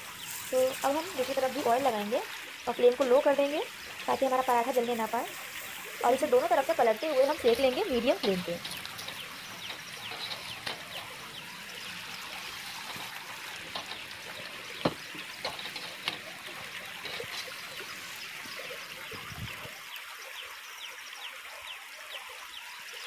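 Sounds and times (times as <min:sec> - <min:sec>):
flatbread sizzling in oil: 0:00.0 - 0:20.3.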